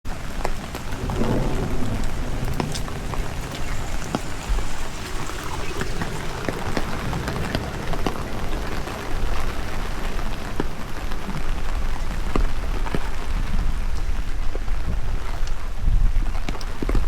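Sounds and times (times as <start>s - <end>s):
rain falling: 0.0s - 17.0s
sharp raindrops striking close: 0.1s - 17.0s
wind buffeting microphone: 0.1s - 17.0s.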